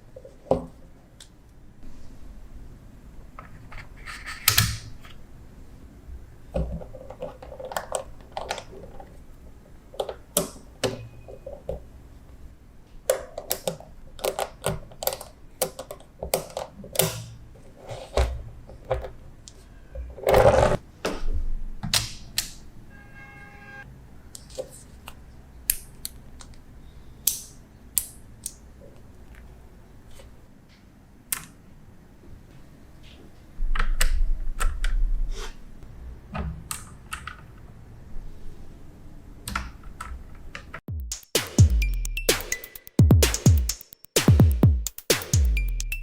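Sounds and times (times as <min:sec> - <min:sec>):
magnetic balls clicking together: 0:41.1 - 0:46.0.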